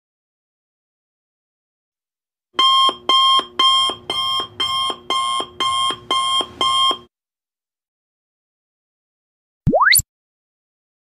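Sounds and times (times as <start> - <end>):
alarm clock beeping: 2.6 - 7.1.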